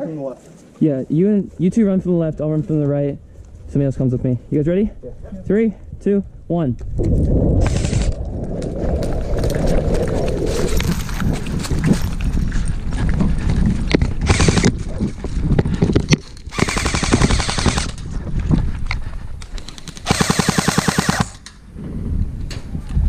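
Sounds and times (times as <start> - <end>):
airsoft guns firing bursts: 16.5 - 18.0, 19.9 - 21.4.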